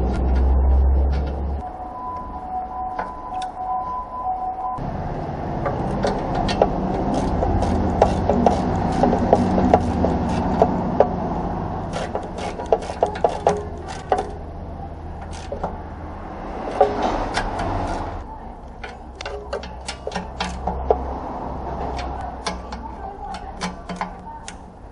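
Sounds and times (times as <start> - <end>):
sharp clicks and knocks: 5.6 - 11.2, 11.8 - 14.5, 15.1 - 24.9.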